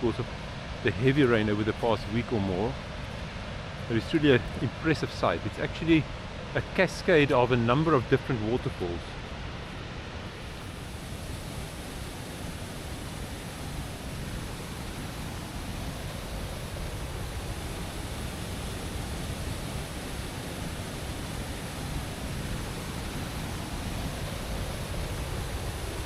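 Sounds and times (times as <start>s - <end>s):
large waterfall rushing: 9.6s - 26.0s.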